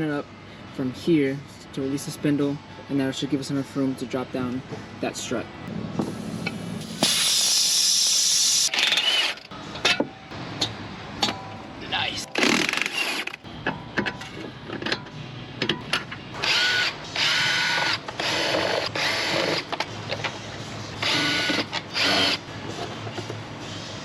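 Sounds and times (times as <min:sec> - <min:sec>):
powered wrench whining: 0:07.4 - 0:09.5, 0:12.3 - 0:13.4, 0:16.4 - 0:20.3, 0:21.0 - 0:22.5.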